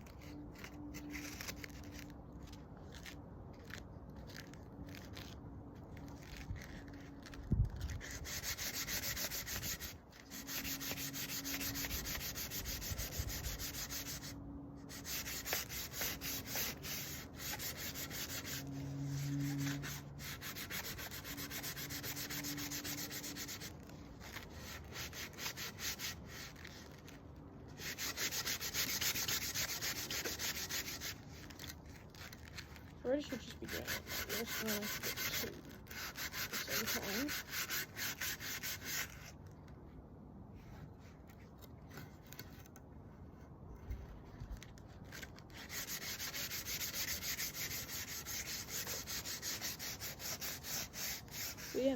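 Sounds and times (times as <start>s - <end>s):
sandpaper rasping on wood: 6.1s - 27.2s, 27.8s - 39.3s, 45.1s - 51.9s.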